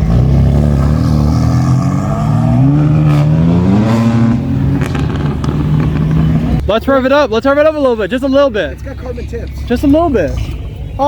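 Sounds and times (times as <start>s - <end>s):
car engine accelerating: 0.0s - 6.7s.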